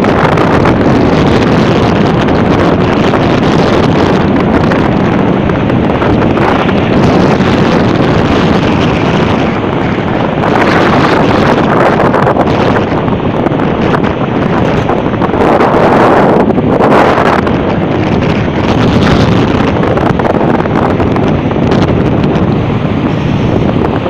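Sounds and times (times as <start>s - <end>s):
storm wind buffeting microphone: 0.0s - 24.0s.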